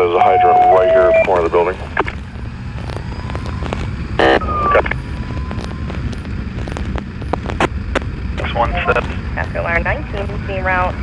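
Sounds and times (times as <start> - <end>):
police scanner burst: 0.0 - 2.2, 8.4 - 10.7
wind noise on microphone: 1.1 - 11.0.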